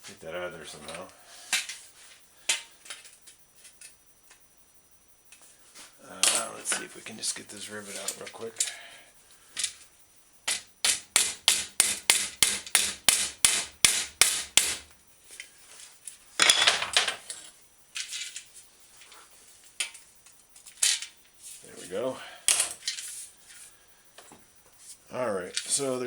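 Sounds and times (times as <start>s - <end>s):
hammer strikes on metal: 10.5s - 14.8s.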